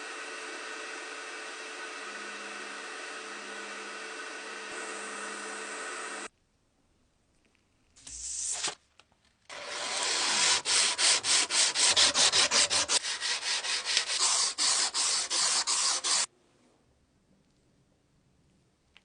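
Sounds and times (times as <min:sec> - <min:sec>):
sanding strokes on metal case: 0:09.5 - 0:16.3.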